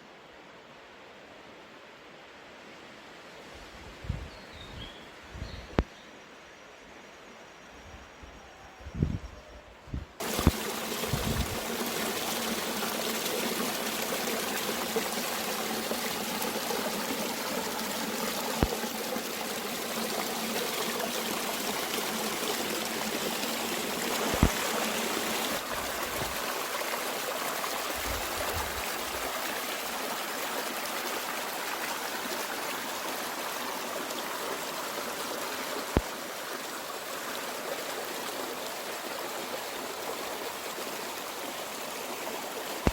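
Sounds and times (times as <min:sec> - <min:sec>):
mountain stream flowing: 0:10.2 - 0:42.9.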